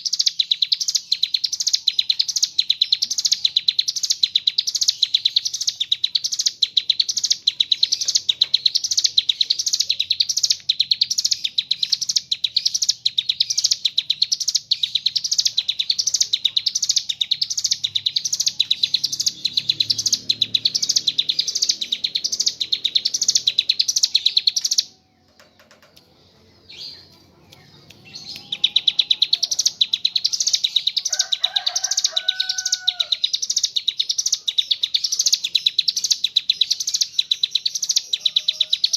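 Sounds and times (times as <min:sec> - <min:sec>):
bird trilling song: 0:00.0 - 0:38.9.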